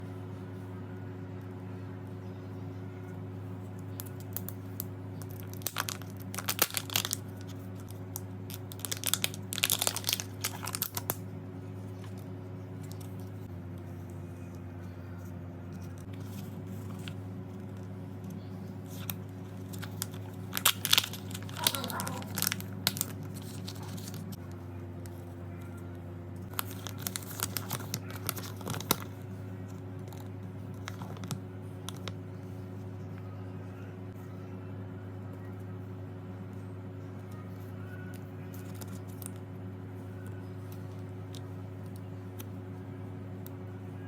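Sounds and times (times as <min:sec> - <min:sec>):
steady low hum: 0:00.0 - 0:44.0
plastic foil wrapper crinkling: 0:03.9 - 0:11.2, 0:18.8 - 0:24.4, 0:26.5 - 0:29.2.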